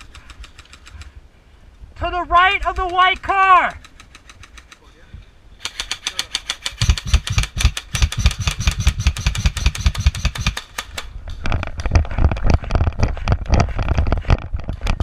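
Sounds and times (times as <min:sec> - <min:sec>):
airsoft gun firing full auto: 0:05.6 - 0:11.2.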